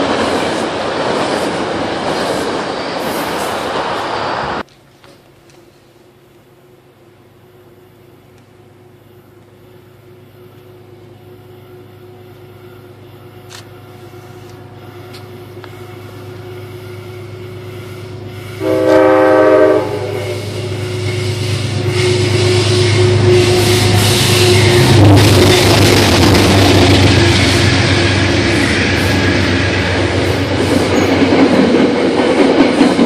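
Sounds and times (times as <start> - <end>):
train rumble: 0.0 - 33.0
locomotive horn blast: 13.2 - 31.0.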